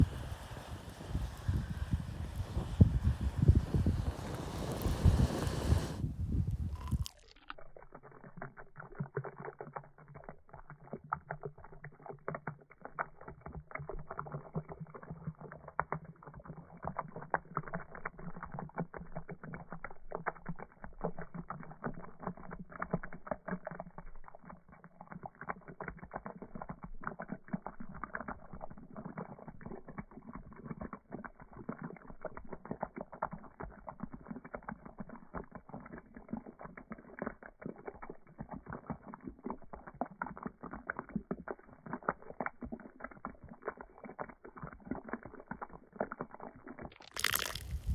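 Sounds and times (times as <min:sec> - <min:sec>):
wind buffeting microphone: 0:00.0 - 0:07.1, 0:47.6 - 0:47.9
wood fire crackling and popping: 0:03.2 - 0:06.0, 0:47.0 - 0:47.9.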